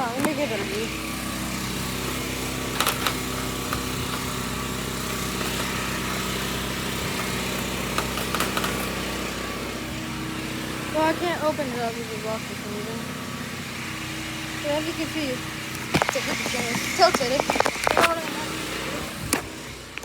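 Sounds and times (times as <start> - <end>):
sharp clicks and rattles: 0.0 - 20.0
small engine running: 0.0 - 20.0.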